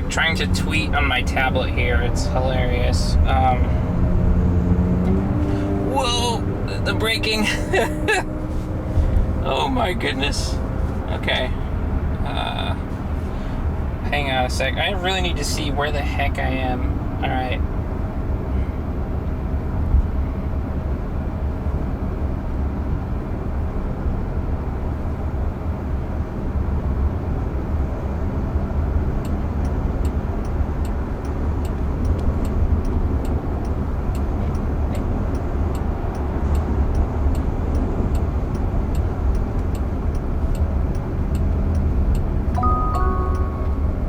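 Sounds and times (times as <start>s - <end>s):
road and tyre rumble in car: 0.0s - 44.0s
faint regular ticking: 29.2s - 43.6s.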